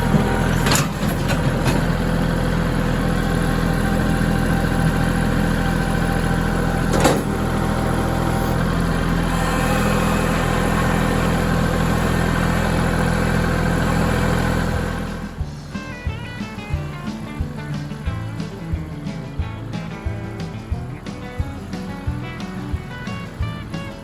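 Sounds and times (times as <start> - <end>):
music: 0.0 - 24.0
tractor diesel engine running: 0.0 - 24.0.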